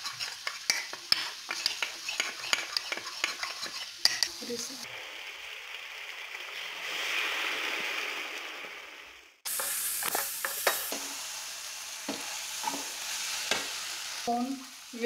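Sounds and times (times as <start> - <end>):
wooden spatula scraping a pan: 0.0 - 4.7
vegetables sizzling in a pan: 0.0 - 15.0.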